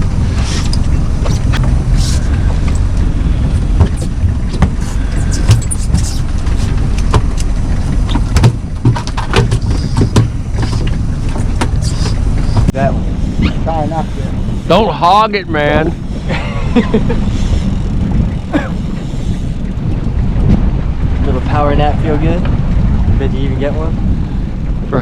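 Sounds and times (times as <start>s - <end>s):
boat motor rumbling: 0.0s - 25.0s
knocks and clicks: 2.5s - 12.8s.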